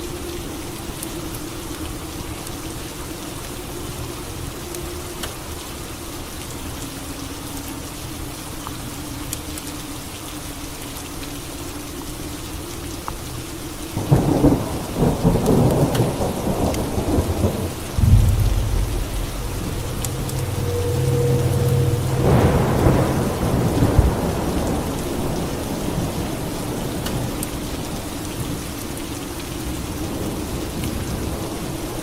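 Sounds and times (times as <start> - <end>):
steady rain: 0.0 - 32.0
thunderclap and rolling thunder: 14.0 - 27.4.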